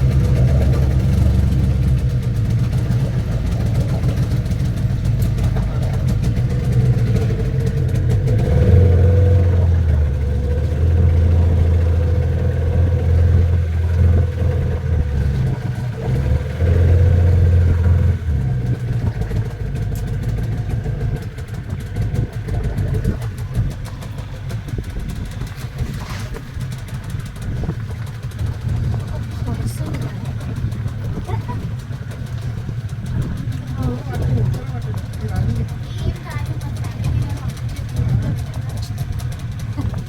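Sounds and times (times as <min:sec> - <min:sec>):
boat engine droning: 0:00.0 - 0:40.0.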